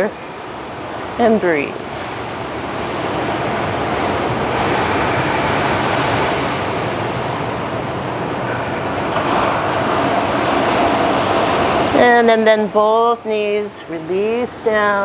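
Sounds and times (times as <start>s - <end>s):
surf washing on shore: 0.0s - 15.0s
wind on microphone: 0.6s - 12.5s.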